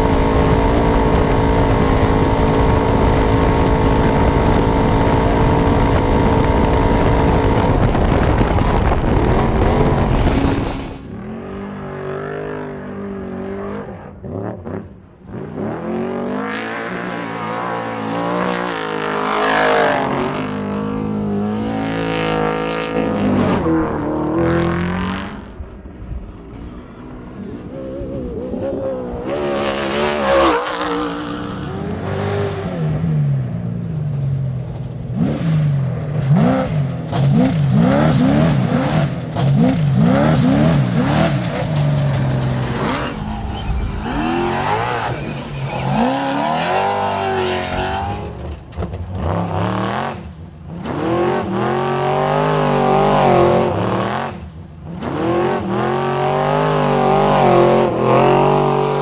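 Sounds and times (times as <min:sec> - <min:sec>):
engine revving: 0:00.0 - 0:25.7, 0:27.4 - 0:33.5, 0:35.1 - 0:59.0
race truck engines running hard: 0:12.9 - 0:59.0
truck passing by: 0:39.0 - 0:50.3.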